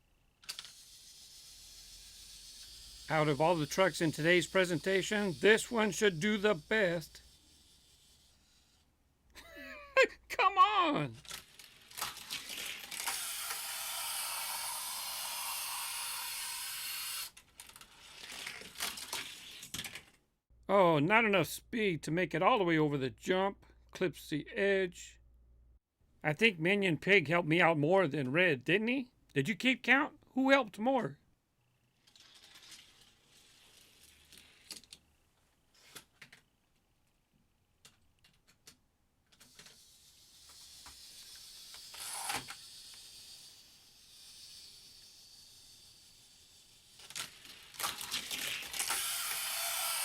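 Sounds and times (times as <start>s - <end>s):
toy car clattering on track: 0.4s - 8.7s, 11.2s - 20.2s, 32.0s - 35.0s, 37.8s - 50.0s
toy car rolling on plastic track: 0.4s - 8.8s, 11.2s - 20.2s, 32.0s - 36.4s, 38.2s - 50.0s.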